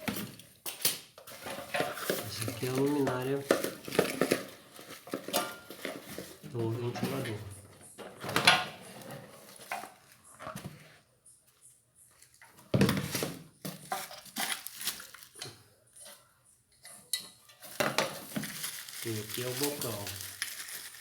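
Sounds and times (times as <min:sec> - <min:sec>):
packaging rustling: 0:01.3 - 0:07.6, 0:13.1 - 0:15.4, 0:17.6 - 0:21.0.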